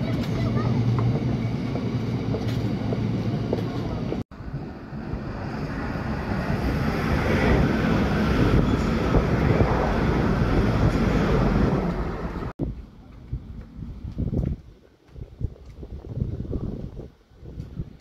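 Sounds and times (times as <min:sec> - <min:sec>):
electric train passing: 0:00.0 - 0:12.5.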